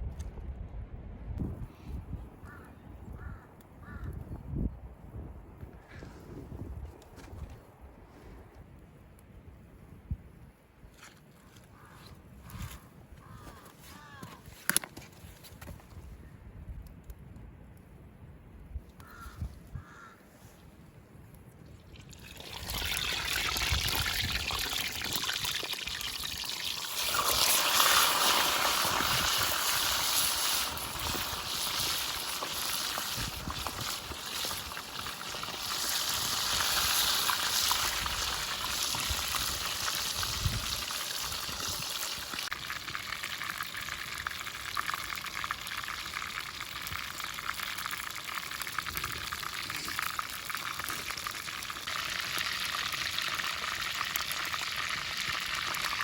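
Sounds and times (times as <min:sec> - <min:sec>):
chicken sizzling in hot oil: 0:22.2 - 0:56.0.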